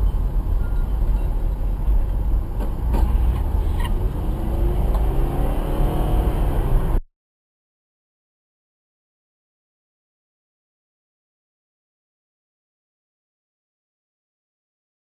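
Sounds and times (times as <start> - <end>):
car driving road rumble: 0.0 - 7.0.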